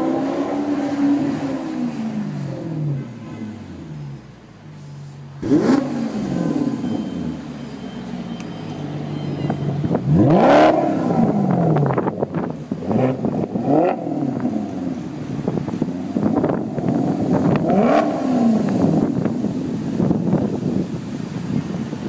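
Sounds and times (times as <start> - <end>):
car engine revving: 5.4 - 7.6, 9.8 - 22.0.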